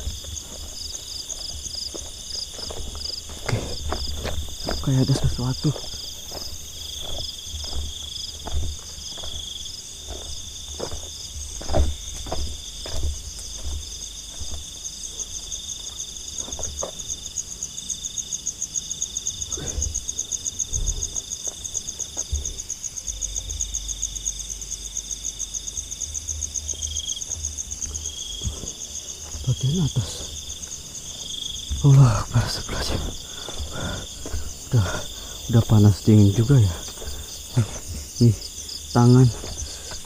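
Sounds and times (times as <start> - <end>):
footsteps on forest floor: 0.0 - 17.6, 19.6 - 22.8, 26.6 - 40.0
high fast-pulsing insect trill: 0.0 - 40.0.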